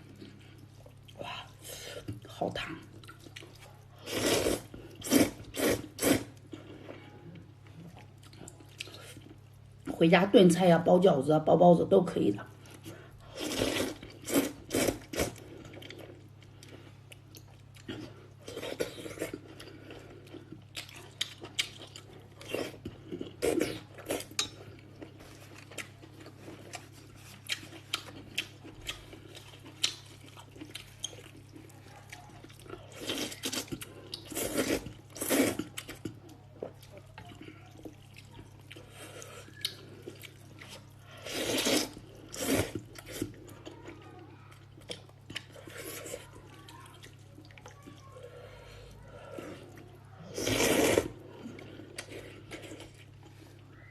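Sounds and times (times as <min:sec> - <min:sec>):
chewing: 0:00.0 - 0:09.6, 0:12.5 - 0:53.9
wet noodle slurps: 0:04.0 - 0:06.4, 0:41.2 - 0:43.2, 0:50.3 - 0:51.2.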